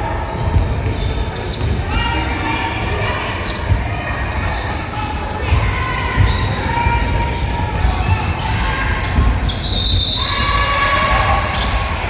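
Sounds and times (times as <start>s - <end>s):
basketball bouncing on hardwood: 5.5s - 11.9s.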